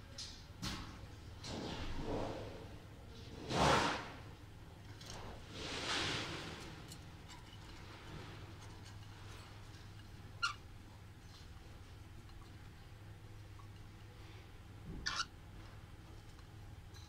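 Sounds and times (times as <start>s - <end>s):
steady low hum: 0.0s - 17.0s
pet bird chirp: 15.0s - 15.3s.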